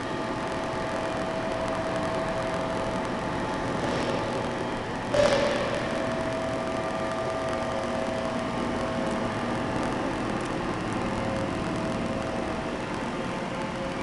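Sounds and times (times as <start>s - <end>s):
machine hum: 0.0s - 14.0s
machine whine: 0.0s - 14.0s.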